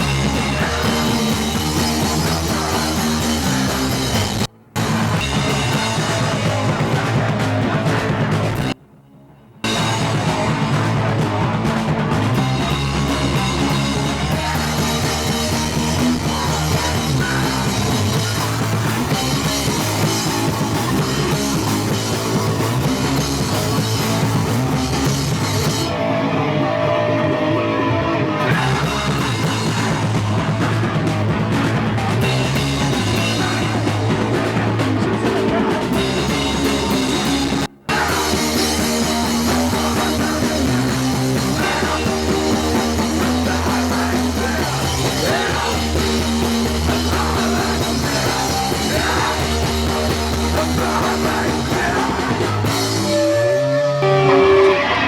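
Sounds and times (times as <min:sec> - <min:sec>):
punk rock band playing live: 0:00.0 - 0:08.8, 0:09.6 - 0:55.0.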